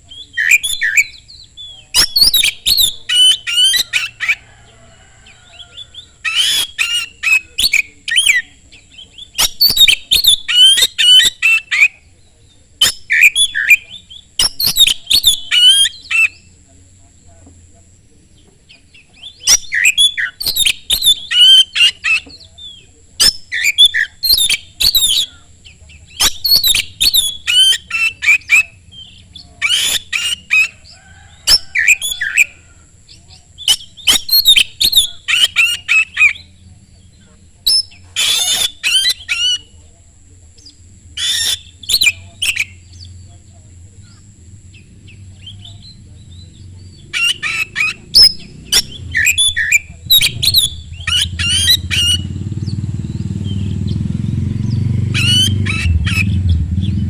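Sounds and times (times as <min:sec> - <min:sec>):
bird singing chirps and whistles: 0:00.0 - 0:04.4, 0:05.7 - 0:16.6, 0:18.9 - 0:37.1, 0:37.7 - 0:39.8, 0:40.6 - 0:43.3, 0:44.0 - 0:57.0.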